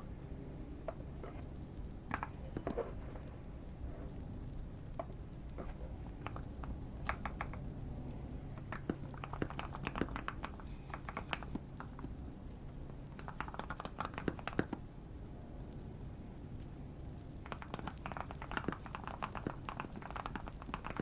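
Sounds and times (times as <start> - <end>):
mechanical keyboard typing: 5.0 - 7.8, 8.6 - 12.1, 13.2 - 14.8, 17.4 - 21.0.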